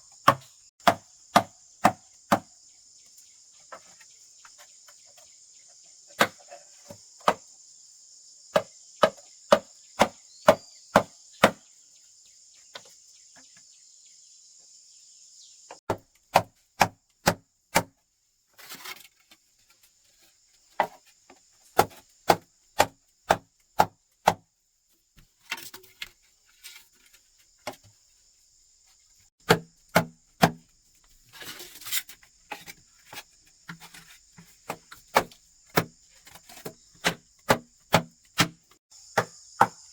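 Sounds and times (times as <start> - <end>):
axe chopping wood: 0.2 - 2.5, 6.2 - 6.5, 7.2 - 7.4, 8.5 - 11.6, 15.8 - 18.0, 21.8 - 24.4, 29.4 - 30.6, 34.6 - 39.8
high insect drone: 30.2 - 39.9.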